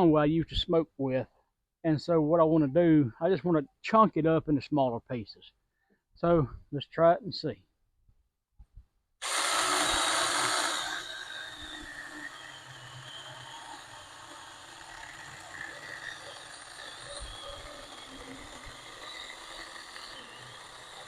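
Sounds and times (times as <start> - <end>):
electric chainsaw cutting log: 9.2 - 21.0.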